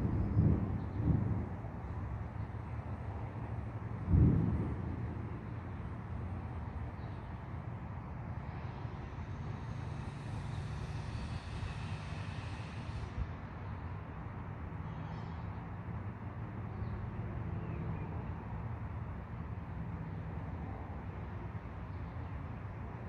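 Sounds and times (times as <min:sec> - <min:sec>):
rolling thunder: 0:00.0 - 0:06.6
rain hissing: 0:08.4 - 0:13.6.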